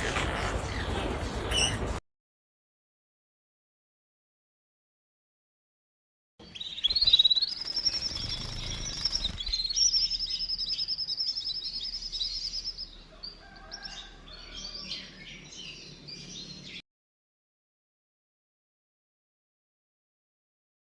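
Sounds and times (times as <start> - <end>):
small birds trilling: 0.0 - 2.0, 6.4 - 16.8
small birds chirping: 6.4 - 16.8.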